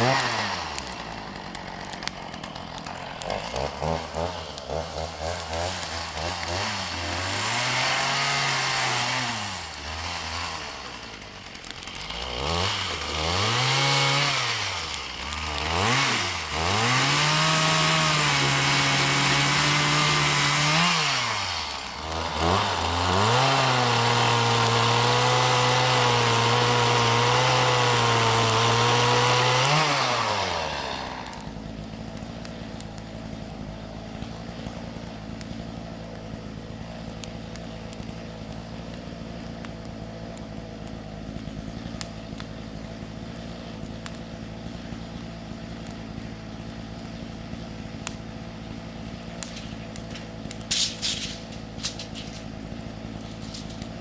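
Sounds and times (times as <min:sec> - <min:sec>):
chainsaw milling cut: 0:00.0 - 0:54.0
rustling: 0:49.4 - 0:52.6.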